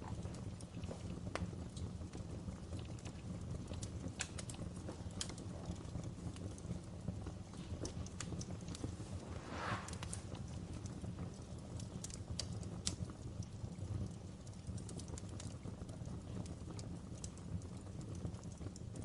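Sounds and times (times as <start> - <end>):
wood fire crackling: 0.0 - 19.0
rush of noise: 8.9 - 10.6.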